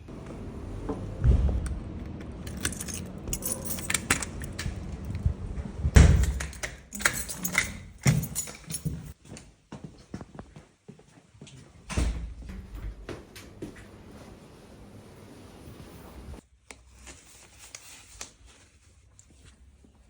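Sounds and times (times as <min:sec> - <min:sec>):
heavy thump: 0:00.9 - 0:01.8
small metal objects jingling: 0:02.5 - 0:04.6, 0:06.2 - 0:09.2.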